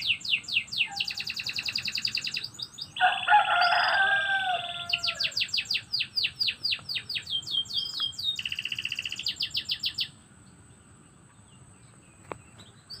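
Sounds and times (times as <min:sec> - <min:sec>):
canary singing: 0:00.0 - 0:10.2.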